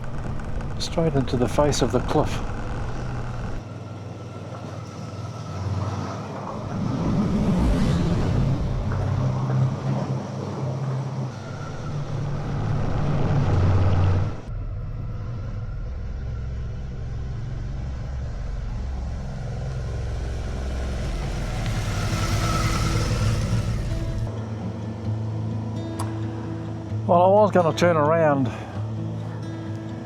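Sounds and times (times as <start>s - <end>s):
motorcycle engine running: 0.0s - 4.8s, 8.8s - 24.3s
rushing wind noise: 6.0s - 24.4s.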